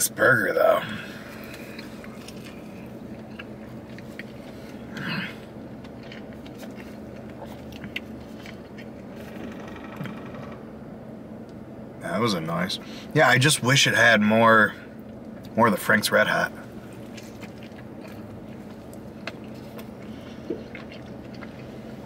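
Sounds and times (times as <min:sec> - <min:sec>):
man chewing food: 0:00.7 - 0:10.6, 0:16.5 - 0:22.0.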